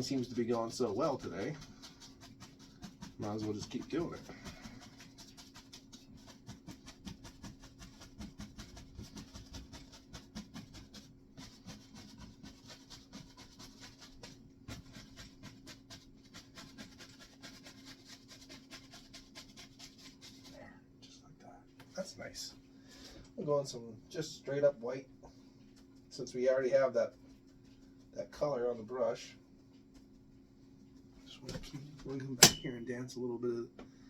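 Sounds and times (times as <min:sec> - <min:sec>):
paintbrush dabbing on canvas: 0:00.0 - 0:20.6.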